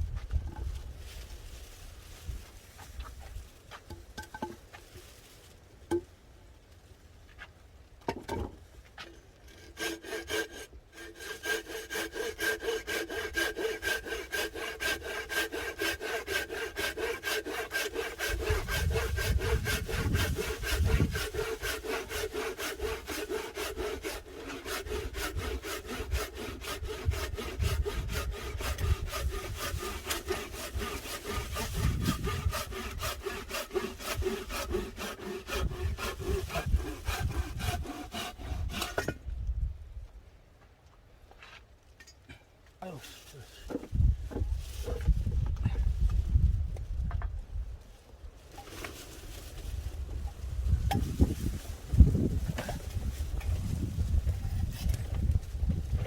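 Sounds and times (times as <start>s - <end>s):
hand saw cutting wood: 9.0s - 39.2s, 50.7s - 56.0s.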